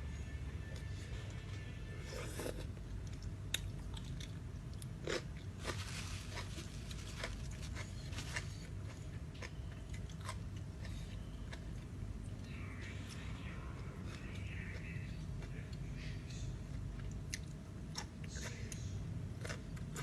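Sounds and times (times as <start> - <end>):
steady low hum: 0.0 - 20.0
person chewing crunchy food: 2.0 - 12.1, 16.6 - 18.7, 19.3 - 20.0.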